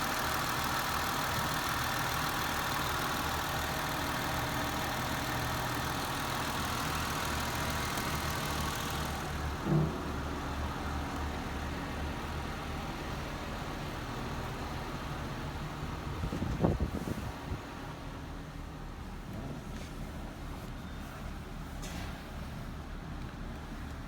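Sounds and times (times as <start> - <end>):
car engine idling: 0.0 - 20.6.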